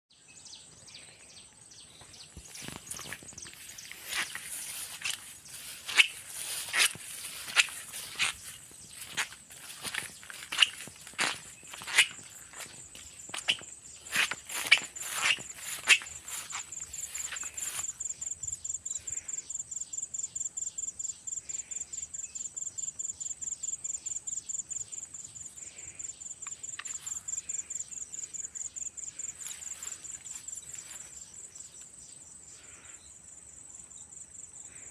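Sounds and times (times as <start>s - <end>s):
insect chirping trill: 0.7s - 34.9s
footsteps: 2.0s - 18.0s.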